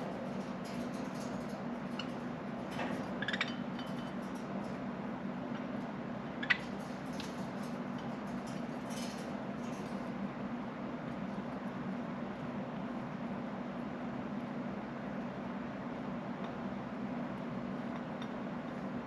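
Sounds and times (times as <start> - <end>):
background hum: 0.0 - 19.0
budgerigars chirping: 3.2 - 3.6.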